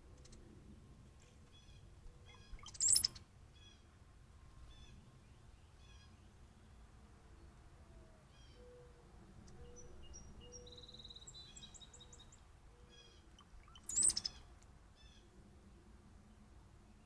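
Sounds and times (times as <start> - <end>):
birds chirping and whistling: 2.3 - 3.2, 13.4 - 14.4.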